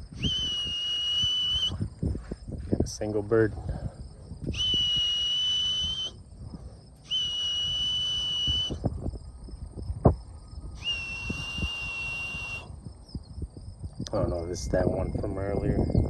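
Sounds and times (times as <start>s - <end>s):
whistle long notes: 0.1s - 1.8s, 4.5s - 6.2s, 7.0s - 8.8s, 10.7s - 12.8s.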